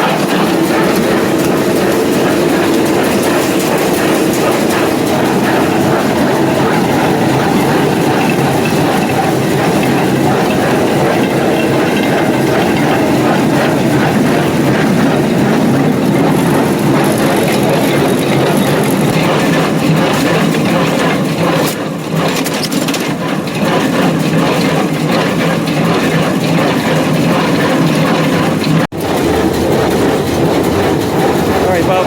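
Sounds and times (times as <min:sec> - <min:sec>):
baler mechanical clatter: 0:00.0 - 0:32.0
tractor engine: 0:00.0 - 0:32.0.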